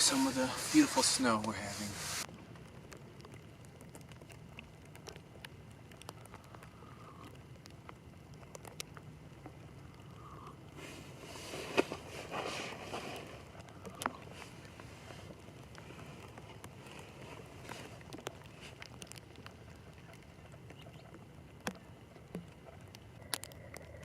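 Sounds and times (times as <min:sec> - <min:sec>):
rustling: 0:00.0 - 0:02.3, 0:10.8 - 0:21.0
snow pattering on plastic: 0:00.0 - 0:02.3, 0:10.8 - 0:19.8.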